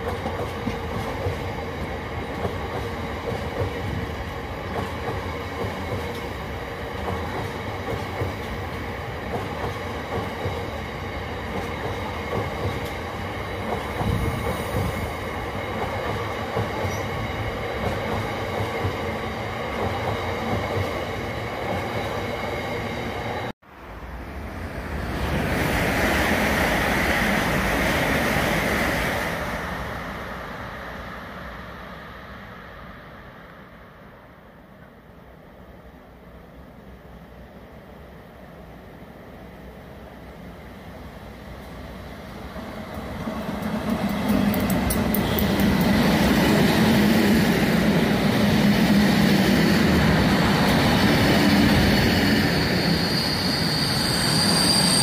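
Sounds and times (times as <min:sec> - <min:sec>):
faint wheel squeal: 0:52.4 - 0:55.0.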